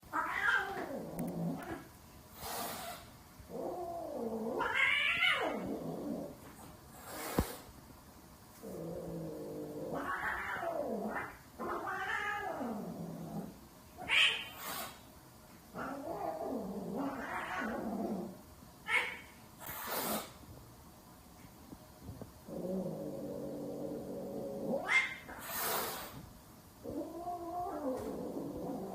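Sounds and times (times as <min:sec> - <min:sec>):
cat growling yowl and shriek: 0:00.1 - 0:01.9, 0:02.6 - 0:06.2, 0:08.7 - 0:15.0, 0:15.7 - 0:20.3, 0:22.5 - 0:26.2, 0:26.8 - 0:28.9
cat hissing: 0:00.2 - 0:05.9, 0:06.9 - 0:07.7, 0:14.0 - 0:15.1, 0:15.8 - 0:20.4, 0:24.7 - 0:26.2.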